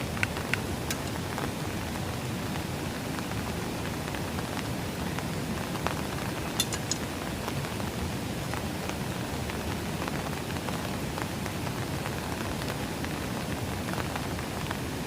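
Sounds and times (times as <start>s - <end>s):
sharp ticks of raindrops: 0.0s - 15.0s
steady rain falling: 0.0s - 15.0s.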